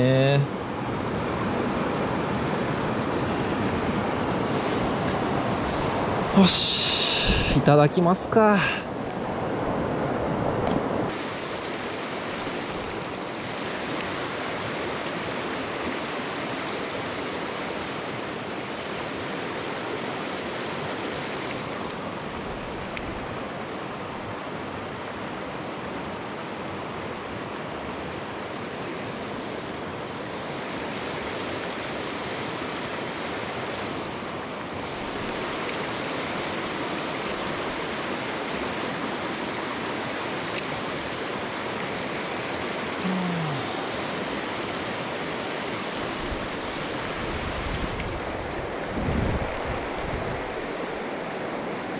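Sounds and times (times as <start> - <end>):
stream water rushing: 0.0 - 51.9.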